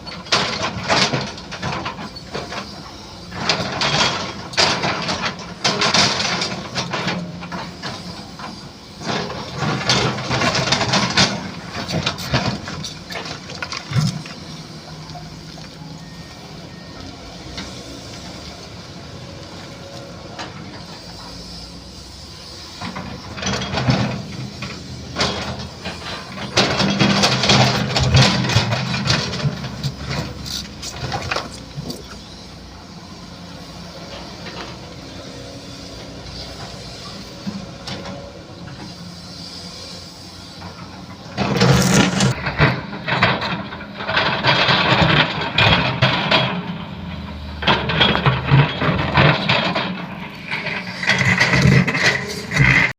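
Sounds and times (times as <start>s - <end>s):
excavator diesel engine running: 0.0s - 52.9s
excavator digging: 0.0s - 52.9s.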